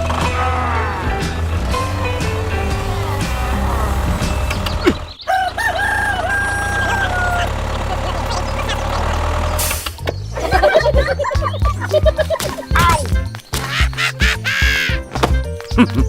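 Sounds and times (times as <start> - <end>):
rooster crowing: 3.0 - 8.1
pitched sounds: 10.4 - 15.0.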